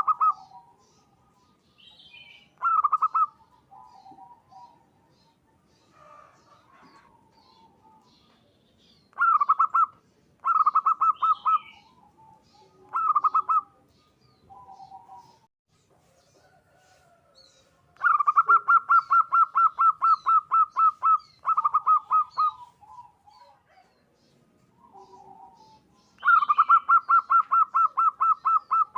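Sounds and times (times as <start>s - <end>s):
dove cooing in rapid bursts: 0.0s - 0.8s, 2.6s - 4.9s, 9.2s - 13.8s, 18.0s - 23.9s, 24.8s - 28.9s.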